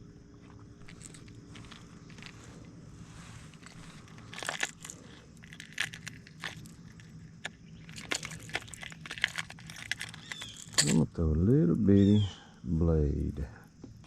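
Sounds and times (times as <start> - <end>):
fishing tackle clicking and rattling: 0.8 - 2.8, 3.5 - 11.1.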